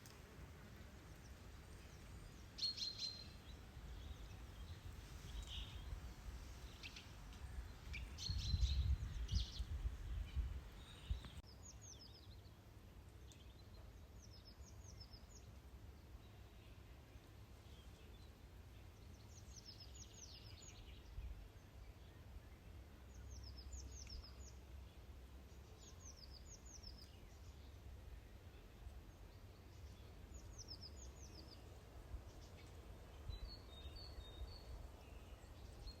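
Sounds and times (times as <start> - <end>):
songbirds chirping: 0.0 - 36.0
wind rumbling on microphone: 3.4 - 11.4.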